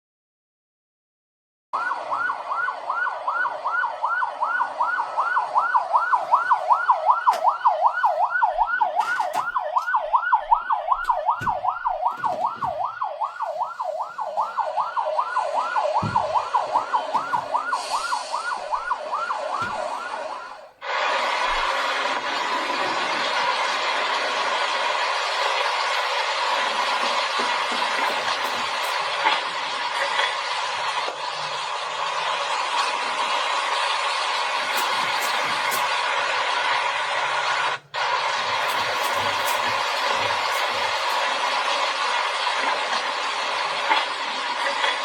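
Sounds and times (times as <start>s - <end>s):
siren yelping: 1.8s - 36.7s, 37.3s - 45.0s
low thuds: 7.6s - 20.7s.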